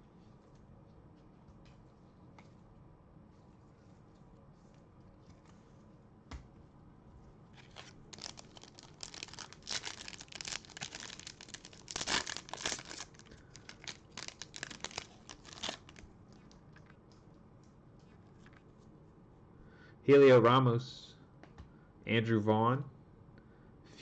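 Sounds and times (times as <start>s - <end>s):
wrapper tearing and crinkling: 7.6s - 16.0s.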